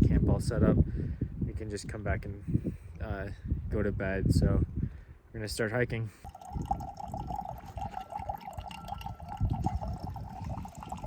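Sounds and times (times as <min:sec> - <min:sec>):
water running and trickling: 0:06.2 - 0:11.0.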